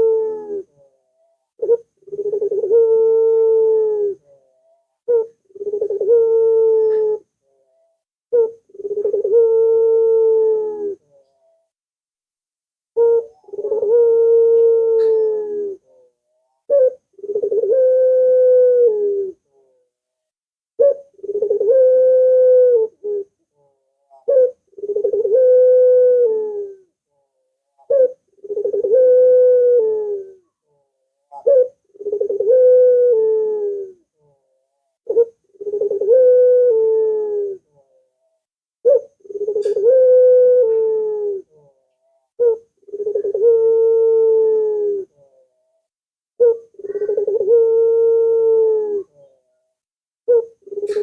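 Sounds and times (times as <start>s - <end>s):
dove cooing: 0.0s - 11.6s, 13.0s - 19.8s, 20.8s - 27.0s, 27.8s - 45.6s, 46.4s - 49.5s, 50.3s - 51.0s.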